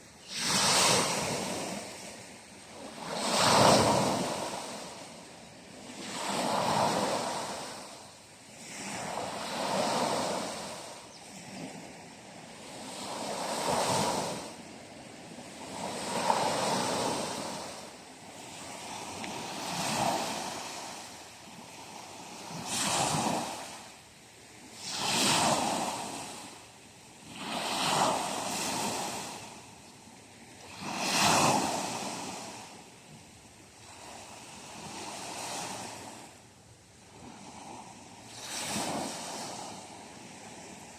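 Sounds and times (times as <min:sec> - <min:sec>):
sea waves washing: 0:00.0 - 0:26.6, 0:37.1 - 0:40.9.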